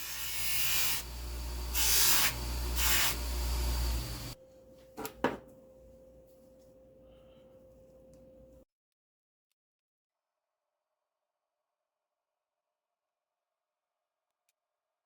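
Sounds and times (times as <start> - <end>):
motor-driven tool humming and hissing: 0.0 - 4.4.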